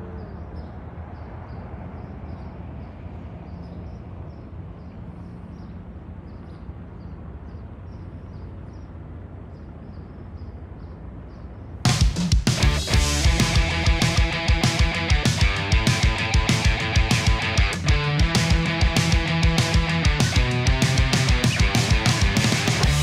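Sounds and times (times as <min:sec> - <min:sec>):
low rumble: 0:12.6 - 0:23.0.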